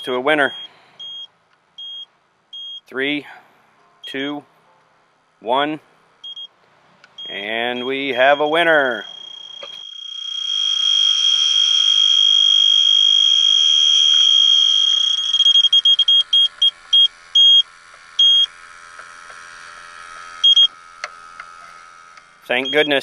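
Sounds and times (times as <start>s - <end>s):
leak detector quick beeps: 0.5s - 2.8s, 7.2s - 18.5s, 20.4s - 20.7s, 22.6s - 23.0s
leak detector high steady tone: 6.2s - 6.5s, 7.2s - 23.0s.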